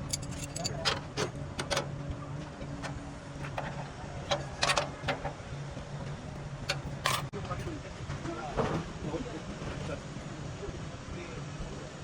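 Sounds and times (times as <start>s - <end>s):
tools clicking and knocking on metal: 0.0s - 1.8s, 6.7s - 7.3s
low mechanical hum: 0.0s - 12.0s.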